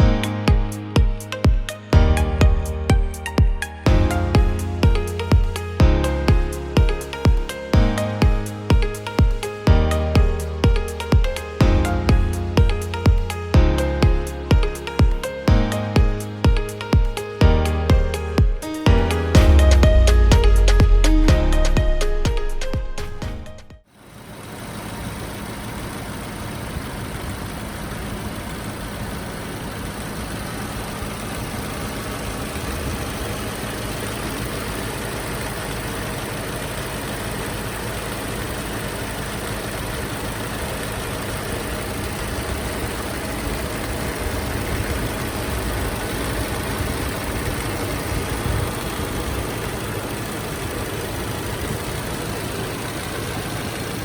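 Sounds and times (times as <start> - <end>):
car engine running at low revs: 19.1 - 54.0.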